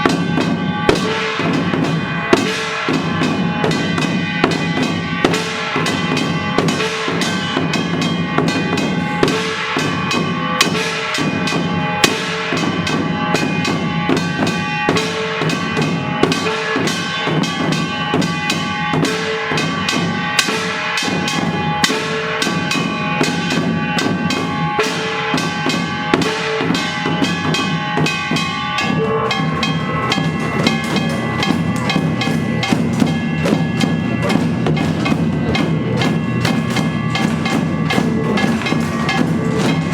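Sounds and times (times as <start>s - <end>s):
drums beaten in driving rhythm: 0.0s - 39.9s
ringing gongs: 0.0s - 39.9s.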